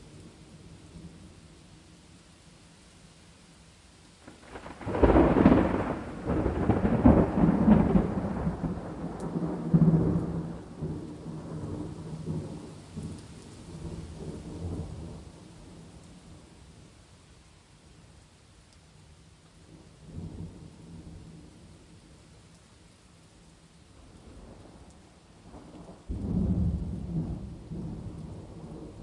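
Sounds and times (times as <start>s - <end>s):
faint rain: 0.0s - 29.0s
thunder cracking and rumbling: 4.3s - 15.3s, 25.4s - 29.0s.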